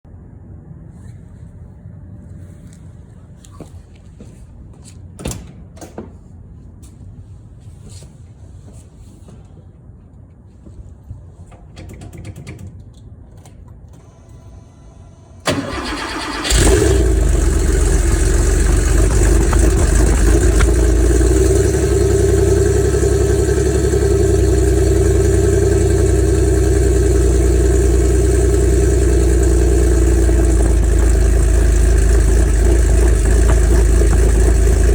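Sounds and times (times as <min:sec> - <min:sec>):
starter cranking: 0:15.5 - 0:21.3, 0:30.5 - 0:34.9
car engine idling: 0:15.5 - 0:34.9.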